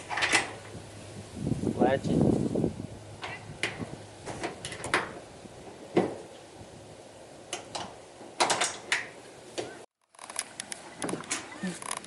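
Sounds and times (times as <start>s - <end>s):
latches clicking and knocking: 0.0s - 0.7s, 3.2s - 5.2s, 7.5s - 9.2s.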